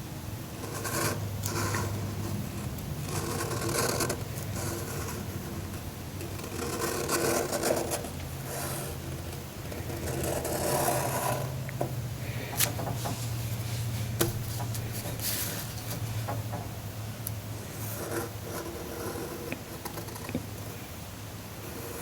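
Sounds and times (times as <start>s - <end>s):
pen scratching on paper: 3.1s - 5.7s, 6.4s - 9.0s, 17.8s - 20.3s
paper rubbing: 13.1s - 16.2s.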